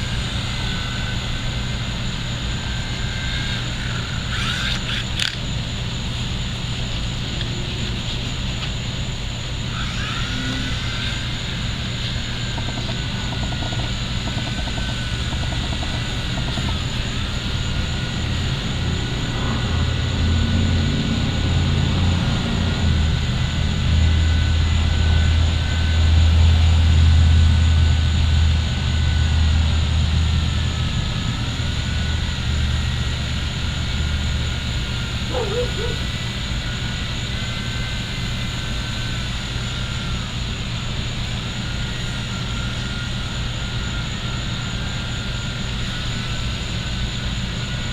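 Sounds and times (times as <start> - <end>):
small electric motors whining: 0.0 - 47.9.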